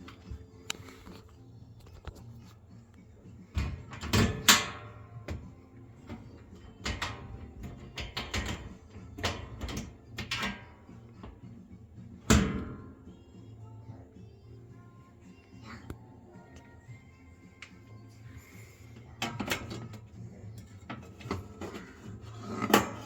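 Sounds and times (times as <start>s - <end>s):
fan parts knocking and clattering: 3.5s - 10.9s.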